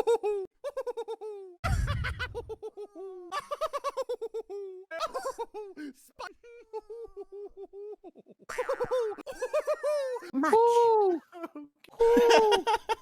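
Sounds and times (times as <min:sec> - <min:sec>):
low rumble: 0:01.7 - 0:02.6.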